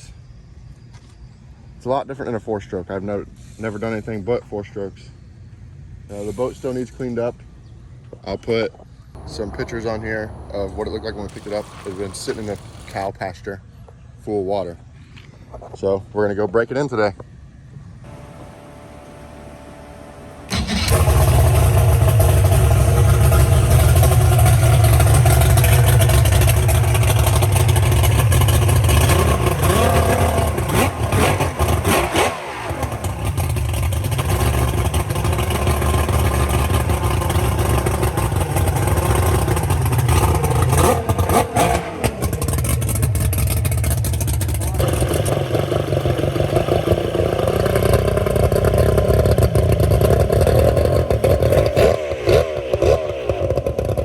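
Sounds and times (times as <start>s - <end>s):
outboard motor droning: 9.2s - 13.1s, 18.1s - 54.0s.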